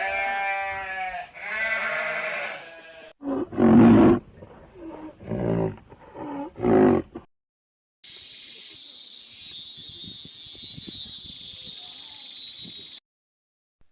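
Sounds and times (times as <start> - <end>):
animal bleating: 0.0 - 3.2.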